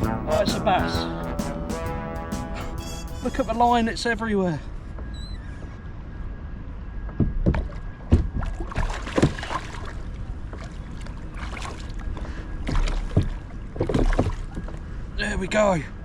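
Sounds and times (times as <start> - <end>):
water and wind rumble: 5.7 - 16.0.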